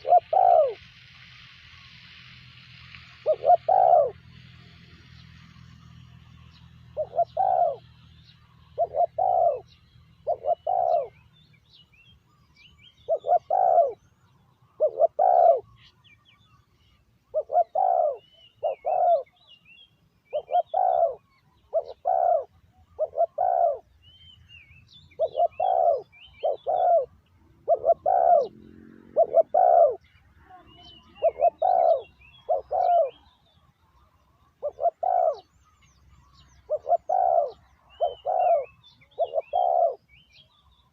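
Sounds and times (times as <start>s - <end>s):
dove cooing: 0.0s - 0.8s, 3.2s - 4.3s, 6.9s - 8.0s, 8.6s - 11.2s, 13.0s - 14.0s, 14.7s - 15.9s, 17.3s - 19.4s, 20.3s - 23.9s, 25.1s - 33.4s, 34.5s - 35.6s, 36.6s - 40.1s
small birds chirping: 0.0s - 0.9s, 2.8s - 40.9s.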